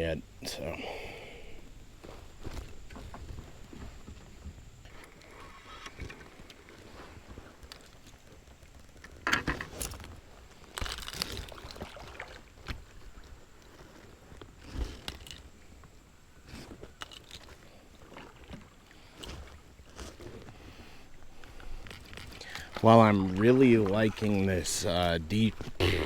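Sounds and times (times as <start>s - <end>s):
kayak knocks and swishes: 2.0s - 15.9s, 16.6s - 25.8s.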